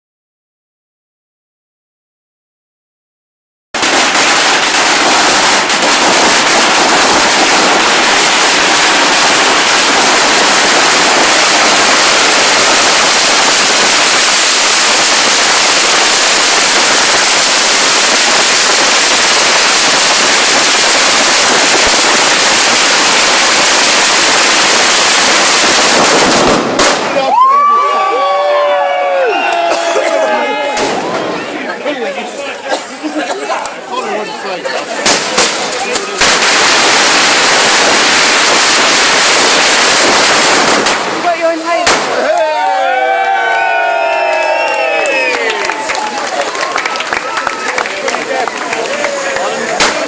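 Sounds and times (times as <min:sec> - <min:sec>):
firecrackers crackling: 0:03.8 - 0:50.0.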